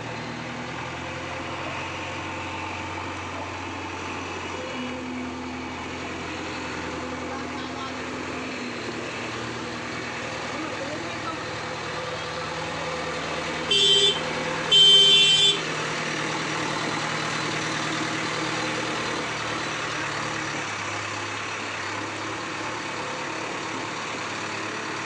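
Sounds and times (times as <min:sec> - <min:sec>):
engines idling in traffic: 0:00.0 - 0:25.0
vehicle horn honks: 0:13.6 - 0:15.7.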